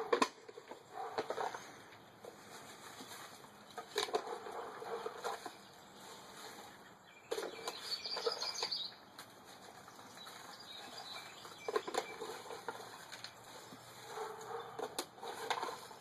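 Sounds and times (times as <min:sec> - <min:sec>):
dirt scooped and packed by hand: 0:00.0 - 0:16.0.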